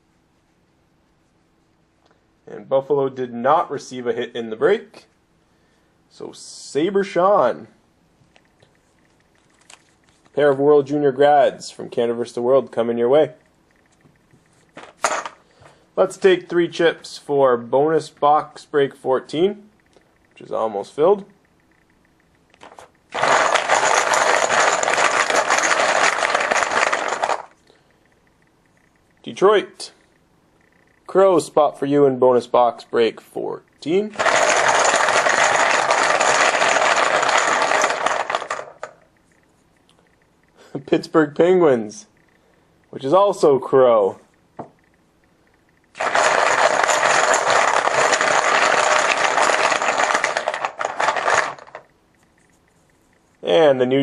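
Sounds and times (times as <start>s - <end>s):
chips being shaken together: 22.6s - 27.5s, 34.1s - 39.0s, 46.0s - 51.8s.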